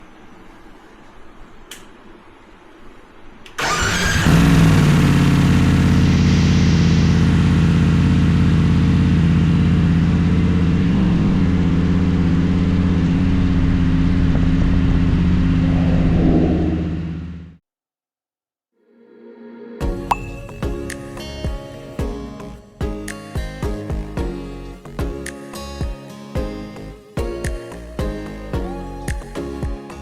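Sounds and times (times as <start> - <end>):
motorcycle engine starting: 3.6 - 13.4.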